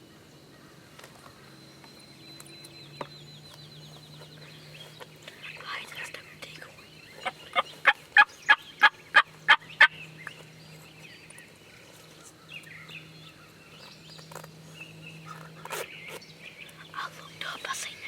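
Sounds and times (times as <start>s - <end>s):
wild turkey yelping: 7.2s - 10.0s.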